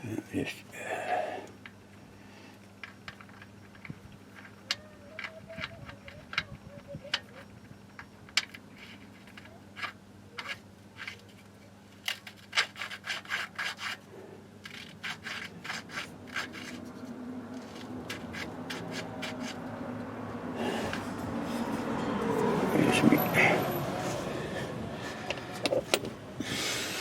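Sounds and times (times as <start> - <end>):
rubbing scraping strokes: 12.4 - 19.8.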